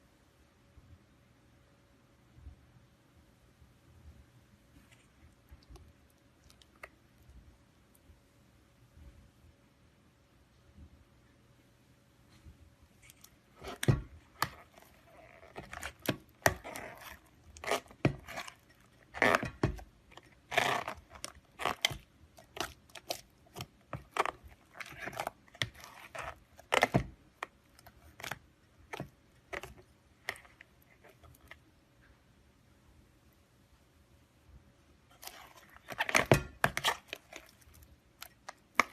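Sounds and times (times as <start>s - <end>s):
slime crackling and popping: 13.0s - 30.6s.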